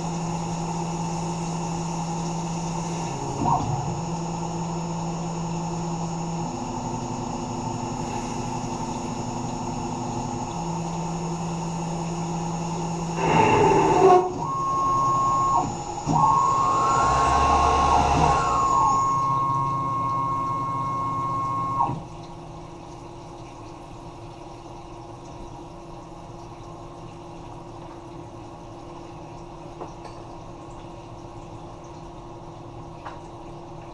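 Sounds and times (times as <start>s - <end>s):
high steady machine whine: 0.0s - 22.3s
machine tones shifting pitch: 3.2s - 22.0s
metal cutting noise: 13.1s - 20.6s.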